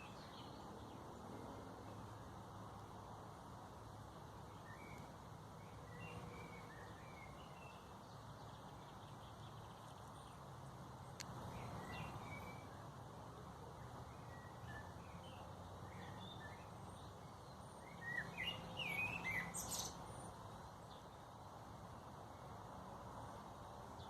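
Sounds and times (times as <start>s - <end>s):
small birds chirping: 0.0s - 2.9s, 3.9s - 24.0s.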